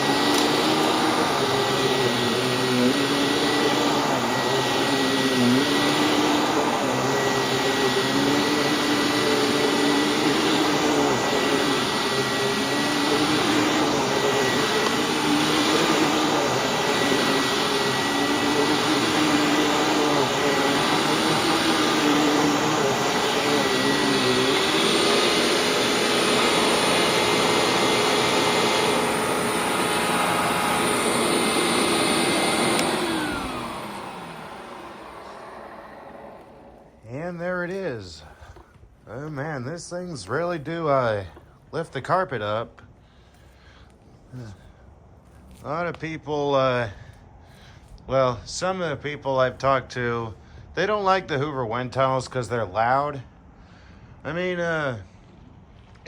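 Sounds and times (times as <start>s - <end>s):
vacuum cleaner on carpet: 0.0s - 42.9s.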